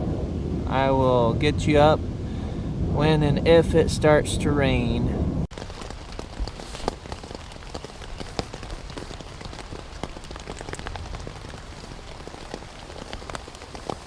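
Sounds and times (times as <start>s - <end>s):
rain hissing on a tent: 5.5s - 14.0s
raindrops ticking on tent fabric: 5.5s - 14.0s.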